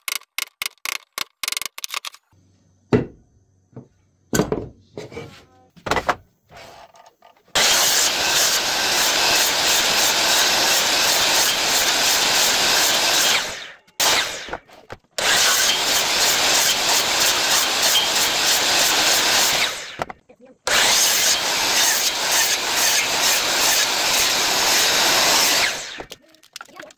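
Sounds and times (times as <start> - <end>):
woodworking tool cutting wood: 7.5 - 26.2.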